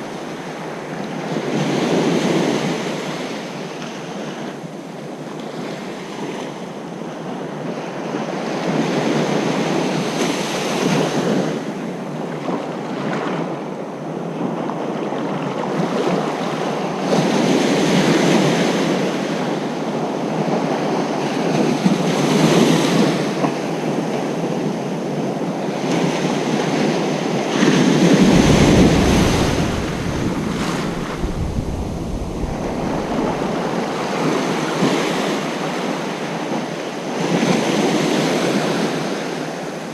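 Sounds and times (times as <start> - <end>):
deep wave rumble: 0.0 - 1.0, 28.0 - 35.3
waves breaking on beach: 0.0 - 3.3, 27.0 - 39.9.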